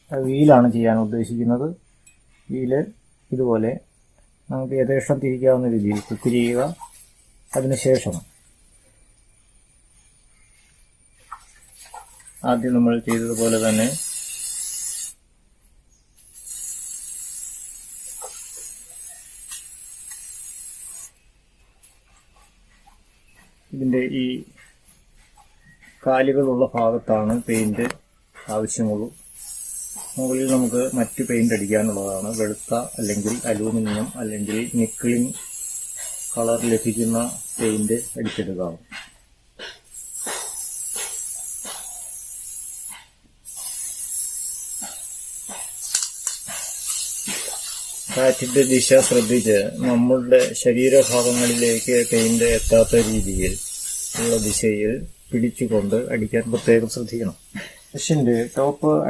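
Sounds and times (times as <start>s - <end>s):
spray paint can hissing: 5.9s - 8.5s, 12.6s - 15.2s, 16.1s - 21.2s, 27.2s - 58.8s.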